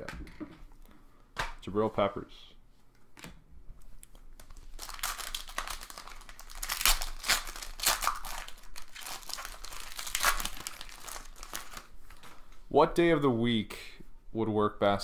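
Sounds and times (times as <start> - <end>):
card pack wrapper crinkling: 4.0 - 12.5.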